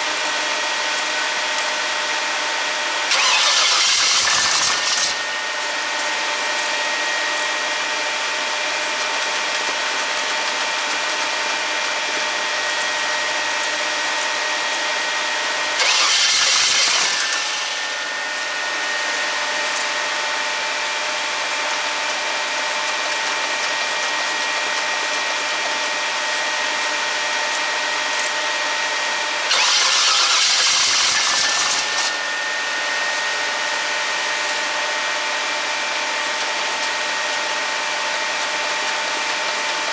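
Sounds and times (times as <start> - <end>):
truck engine idling roughly: 3.1 - 5.4, 15.8 - 17.7, 29.5 - 32.2.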